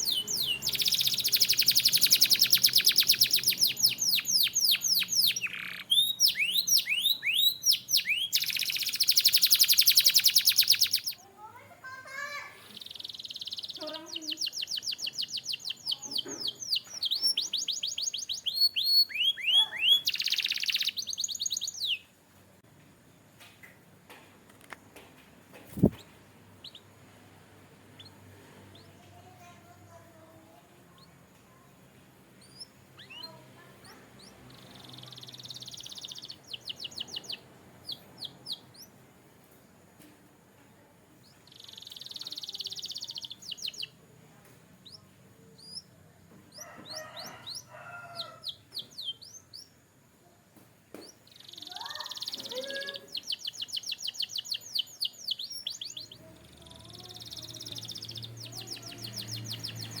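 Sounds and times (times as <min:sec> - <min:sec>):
canary singing: 0:00.0 - 0:22.2, 0:25.7 - 0:27.0, 0:32.4 - 0:39.0, 0:41.3 - 0:44.1, 0:44.8 - 0:49.9, 0:51.0 - 1:00.0.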